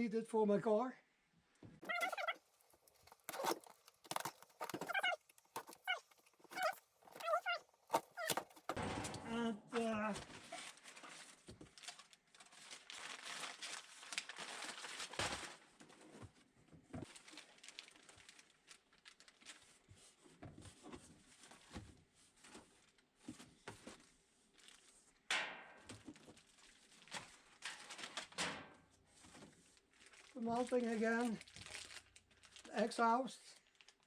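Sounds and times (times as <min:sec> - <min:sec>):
packaging crinkling and rustling: 0:01.8 - 0:08.8, 0:10.3 - 0:16.2, 0:17.0 - 0:19.9, 0:26.1 - 0:28.4, 0:29.2 - 0:33.0, 0:33.6 - 0:34.0.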